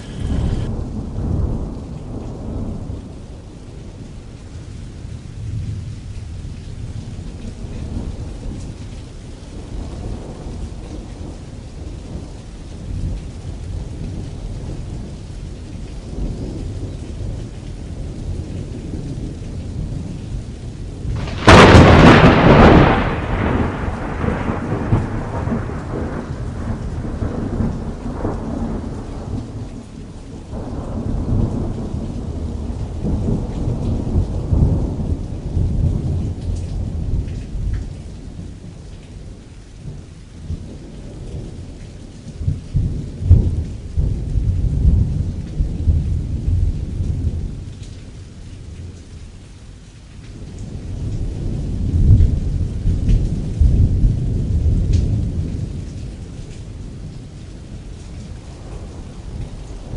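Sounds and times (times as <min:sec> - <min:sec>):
thunder rumbling: 0:00.0 - 0:03.1, 0:21.0 - 0:37.3, 0:50.4 - 0:59.9
rain on a canvas tent: 0:00.0 - 0:59.9.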